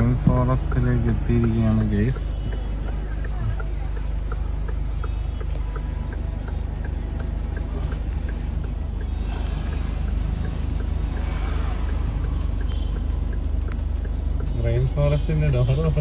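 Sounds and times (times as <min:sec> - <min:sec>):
car engine drone inside cabin: 0:00.0 - 0:16.0
faint regular ticks: 0:00.4 - 0:14.6.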